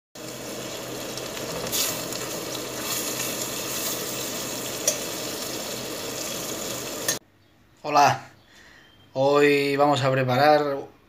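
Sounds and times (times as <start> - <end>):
food sizzling in sauce: 0.2 - 7.2
spoon clinking against pot: 4.8 - 5.1
metal spoon stirring pot: 4.8 - 5.2.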